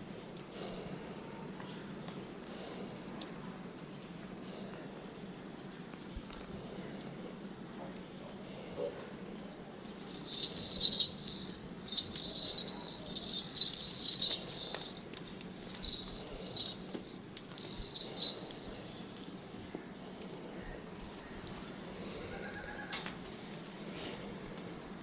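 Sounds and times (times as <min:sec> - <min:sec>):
metallic rattling and jingling: 0:09.9 - 0:19.6.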